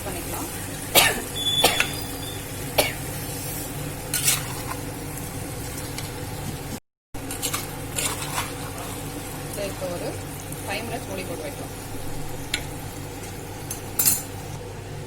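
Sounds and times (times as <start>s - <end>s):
chicken sizzling in a pot: 0.0s - 14.6s
spoon scraping and knocking pot: 7.2s - 8.9s.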